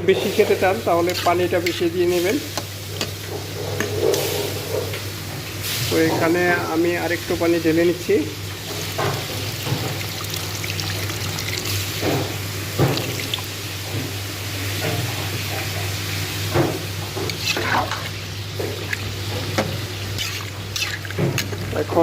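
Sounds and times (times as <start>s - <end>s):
water pouring into cooking pot: 8.8s - 12.0s, 12.8s - 13.6s.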